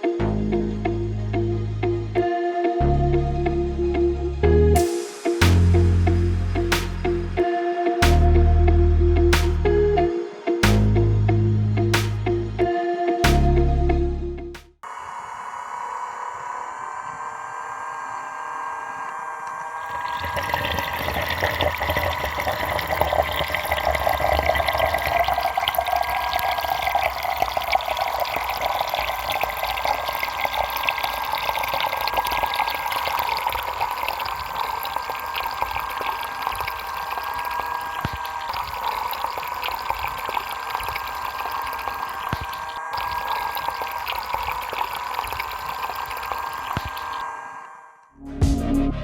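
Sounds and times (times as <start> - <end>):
water pump motor whine: 14.8 - 47.8
water pouring and splashing: 19.8 - 47.2.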